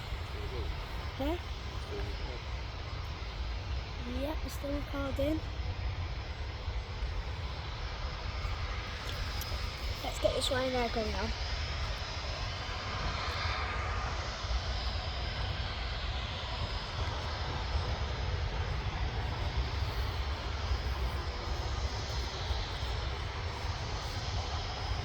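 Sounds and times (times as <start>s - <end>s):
distant jet engines running: 0.0s - 25.0s.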